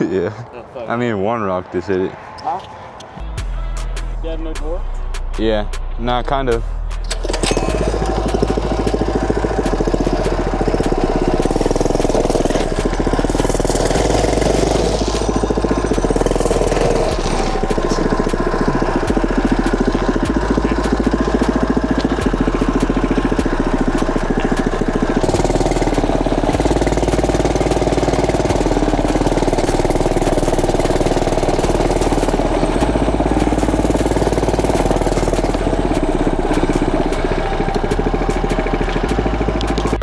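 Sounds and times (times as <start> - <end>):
mini bike engine running: 7.0 - 40.0.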